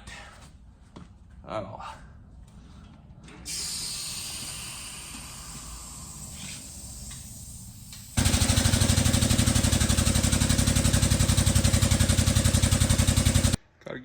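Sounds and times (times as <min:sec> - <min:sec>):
pneumatic impact wrench hammering: 0:03.5 - 0:13.6.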